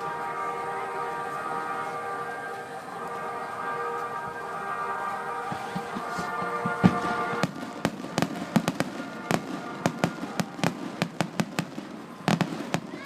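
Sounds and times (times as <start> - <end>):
fireworks bangs and crackles: 5.3 - 13.0.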